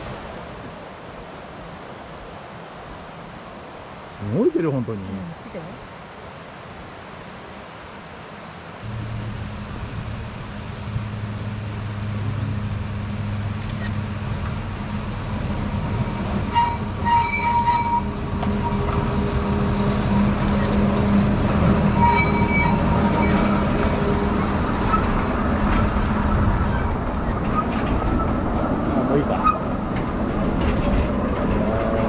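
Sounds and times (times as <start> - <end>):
diesel train engine hum: 8.8 - 32.0.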